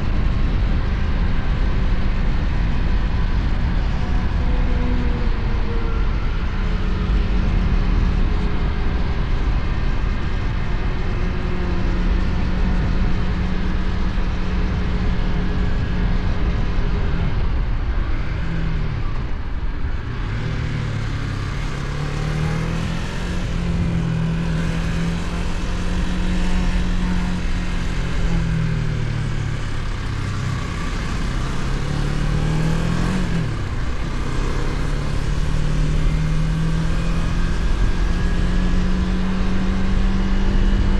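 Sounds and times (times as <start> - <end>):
wind and road noise: 0.0 - 40.9
motorcycle engine revving: 20.0 - 40.9.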